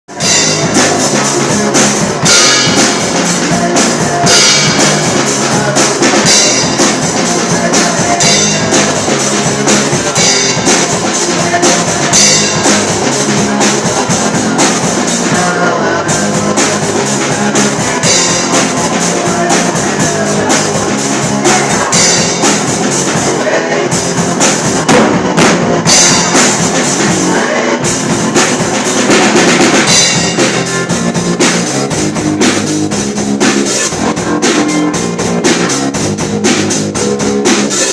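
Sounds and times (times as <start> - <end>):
drum kit beat: 0.1 - 37.9
pitched instruments: 0.1 - 37.9
cymbal accent: 0.2 - 15.1, 24.0 - 36.2.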